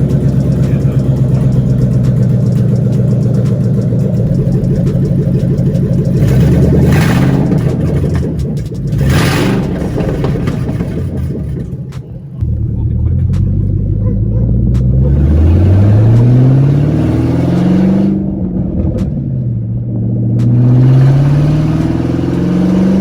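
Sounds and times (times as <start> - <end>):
car engine lumpy idle: 0.0 - 16.6
car engine revving: 0.0 - 23.0.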